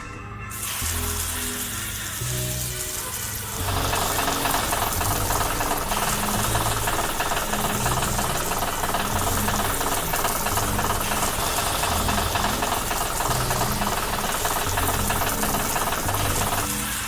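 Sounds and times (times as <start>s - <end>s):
cartoon machinery engine chugging: 3.2s - 17.0s.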